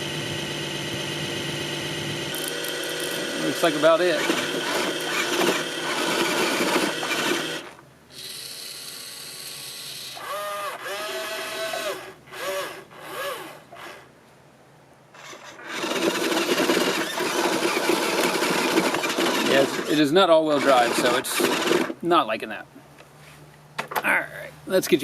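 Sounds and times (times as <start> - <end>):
small electric motor whirring: 0.0 - 14.1, 15.2 - 22.0
toy wheels scrabbling on gravel: 2.4 - 7.7, 15.2 - 21.7.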